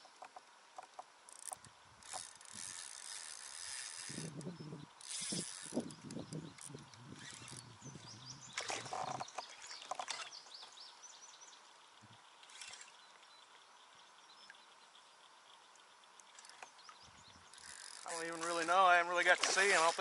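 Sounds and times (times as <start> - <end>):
birds chirping: 4.1 - 20.0.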